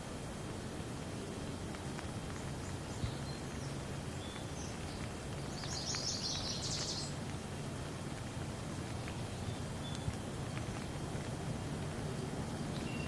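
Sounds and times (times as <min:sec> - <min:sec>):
raindrops ticking: 0:00.0 - 0:13.0
steady rain: 0:00.0 - 0:13.0
bird chirping: 0:02.3 - 0:07.2, 0:08.9 - 0:10.9, 0:12.6 - 0:13.0.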